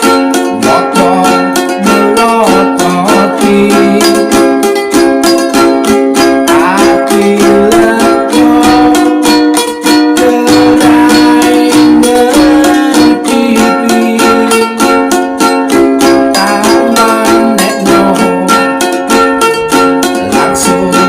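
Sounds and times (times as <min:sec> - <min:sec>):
ukulele strumming chords: 0:00.0 - 0:21.0.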